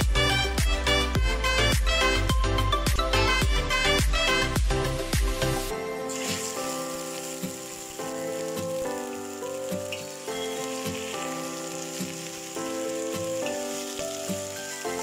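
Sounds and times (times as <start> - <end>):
background music: 0.0 - 15.0
chicken sizzling in hot oil: 3.8 - 15.0.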